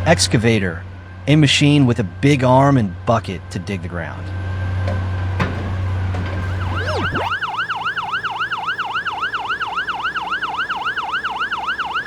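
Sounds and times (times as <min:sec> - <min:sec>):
low engine drone: 0:05.3 - 0:11.9
siren yelping: 0:05.4 - 0:12.0.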